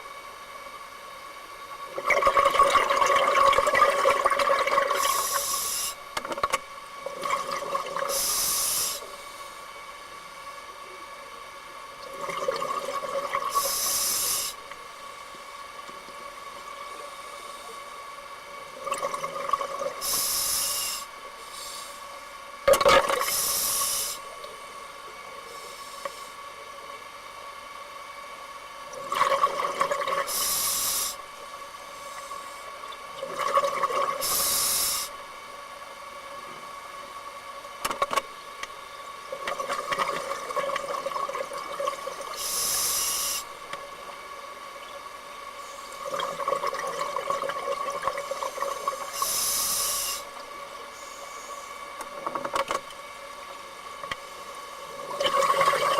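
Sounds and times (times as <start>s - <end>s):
exhaled bubbles rushing: 2.0s - 5.2s, 7.1s - 8.1s, 46.0s - 49.2s, 55.0s - 55.9s
regulator hissing inhale: 5.0s - 6.1s, 8.1s - 9.7s, 13.5s - 14.7s, 20.0s - 22.2s, 23.2s - 24.3s, 25.4s - 26.4s, 30.2s - 31.3s, 34.2s - 35.2s, 42.3s - 43.6s, 45.6s - 46.0s, 48.4s - 51.9s.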